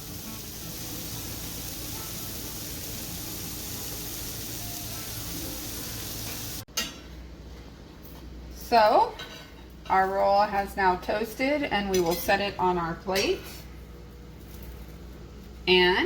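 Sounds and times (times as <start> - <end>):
bread sizzling in a pan: 0.0 - 6.7.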